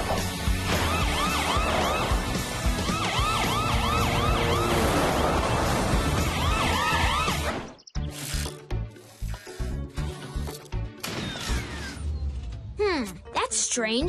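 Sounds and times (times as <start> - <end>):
cartoon police siren wailing: 0.7 - 7.5.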